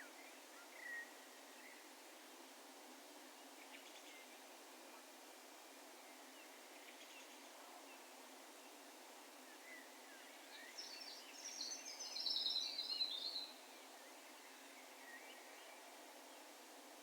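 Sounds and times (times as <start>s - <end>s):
faint background hiss: 0.0s - 17.0s
songbird twittering song: 9.5s - 15.8s.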